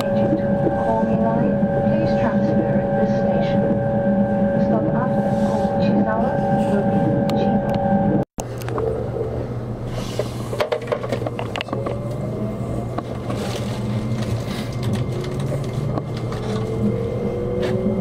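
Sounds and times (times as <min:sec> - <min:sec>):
train interior low hum: 0:00.0 - 0:18.0
train motor whine rising: 0:11.7 - 0:18.0.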